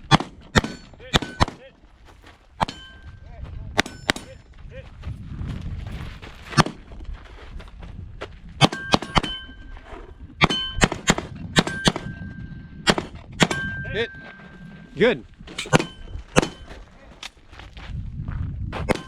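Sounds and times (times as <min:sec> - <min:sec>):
pistol shots: 0:00.0 - 0:01.6, 0:15.6 - 0:16.7
steel target ringing ping: 0:02.6 - 0:03.2, 0:08.6 - 0:09.8, 0:10.4 - 0:12.6, 0:13.4 - 0:15.0, 0:15.6 - 0:16.8.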